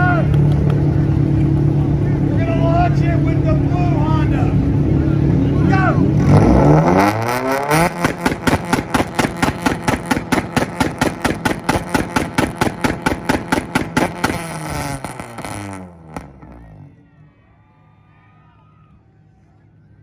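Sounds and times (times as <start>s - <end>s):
rev limiter bangs and pops: 0.0s - 16.7s
car engine revving: 0.0s - 17.1s.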